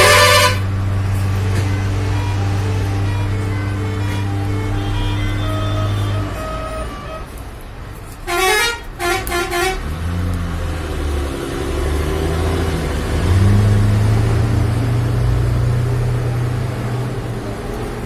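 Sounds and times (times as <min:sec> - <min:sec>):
vehicle horn blasts: 0:00.0 - 0:00.7, 0:01.3 - 0:07.3, 0:08.2 - 0:09.9
vehicle engine humming and revving: 0:00.0 - 0:18.0.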